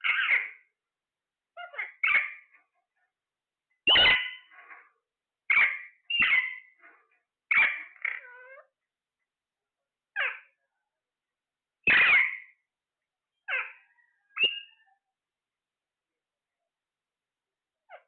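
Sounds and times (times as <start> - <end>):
parrot giving harsh calls: 0.0 - 0.7, 1.6 - 2.6, 3.9 - 4.9, 5.5 - 6.8, 7.5 - 8.7, 10.2 - 10.5, 11.9 - 12.5, 13.5 - 14.0.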